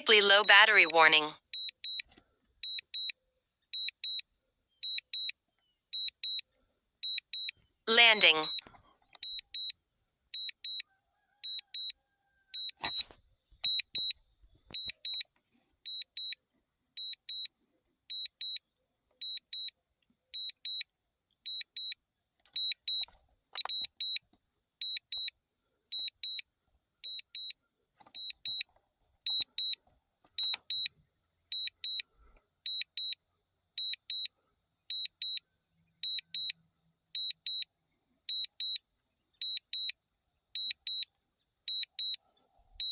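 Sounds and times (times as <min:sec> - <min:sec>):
high double beeps alarm: 0:07.9 - 0:08.6.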